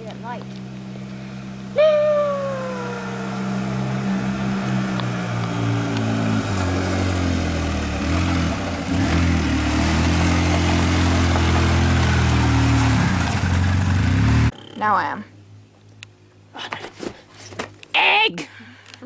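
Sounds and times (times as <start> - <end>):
motorboat engine running: 0.0 - 14.5.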